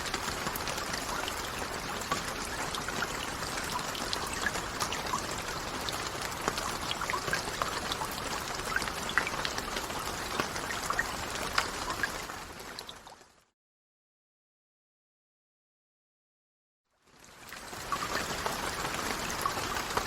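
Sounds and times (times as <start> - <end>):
raindrops ticking: 0.0 - 13.3, 17.5 - 20.0
steady rain: 0.0 - 13.5, 17.0 - 20.0.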